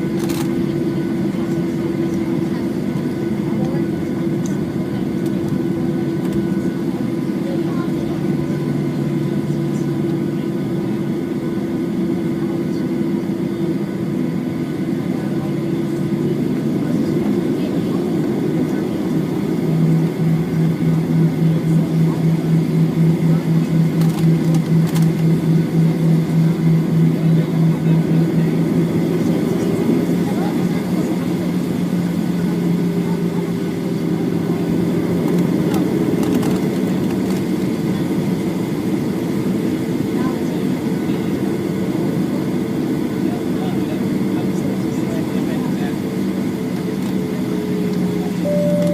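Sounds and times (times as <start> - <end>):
airliner engines humming: 0.0 - 48.9
faint steady tones: 48.4 - 48.9.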